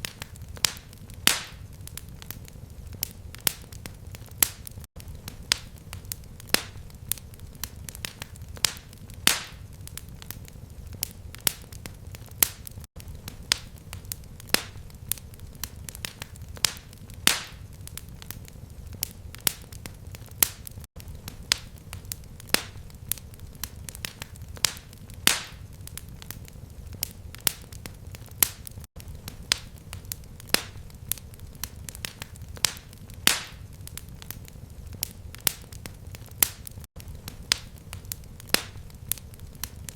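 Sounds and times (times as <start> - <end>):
fire crackling and popping: 0.0 - 39.9
low rumble of flame: 0.0 - 39.9.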